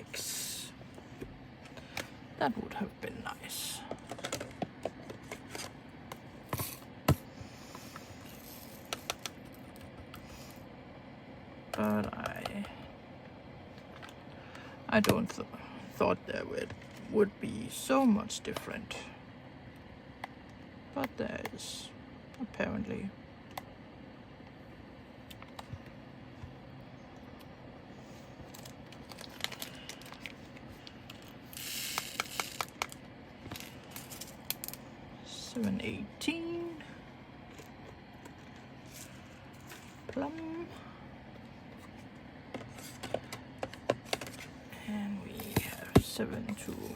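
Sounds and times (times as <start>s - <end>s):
plastic bags rustling: 28.5s - 31.3s.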